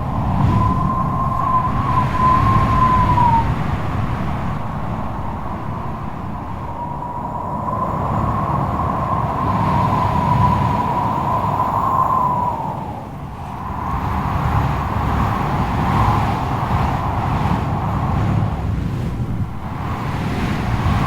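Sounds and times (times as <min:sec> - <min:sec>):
thin wavering whistle: 0:00.0 - 0:03.6
strong wind howling: 0:00.0 - 0:21.0.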